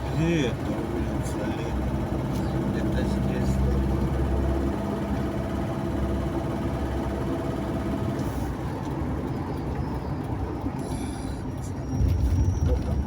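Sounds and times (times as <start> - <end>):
road noise inside car: 0.0 - 13.0
faint engine tone: 6.7 - 13.0.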